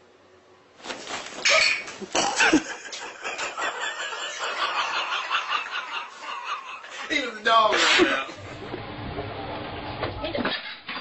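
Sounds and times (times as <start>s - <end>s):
person laughing: 2.0s - 7.0s.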